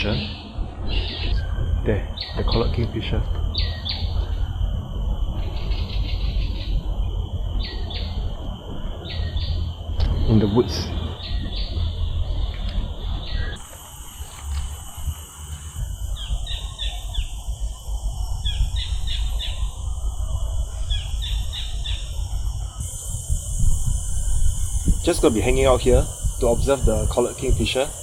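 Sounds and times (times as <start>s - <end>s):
steady high hiss: 0.0s - 28.0s.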